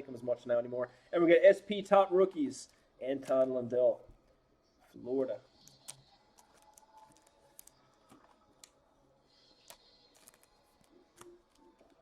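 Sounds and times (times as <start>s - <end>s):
trading cards being shuffled: 9.7s - 12.0s.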